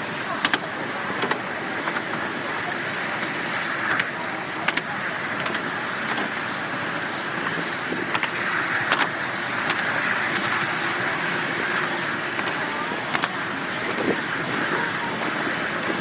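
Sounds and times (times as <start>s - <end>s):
miniature train running on track: 0.0s - 16.0s
sharp clicks: 8.1s - 10.8s, 11.9s - 13.3s.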